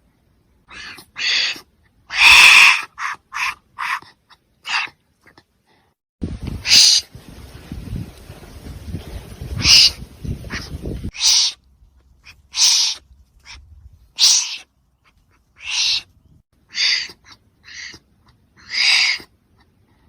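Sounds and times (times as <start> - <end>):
wombat hissing huffs: 0.7 - 4.0, 12.5 - 13.6, 18.6 - 19.3.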